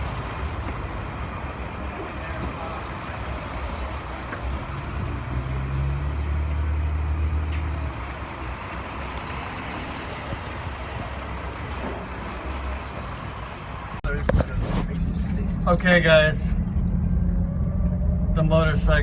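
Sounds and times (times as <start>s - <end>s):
heavy vehicle engine rumbling: 0.0s - 19.0s
traffic: 0.0s - 19.0s.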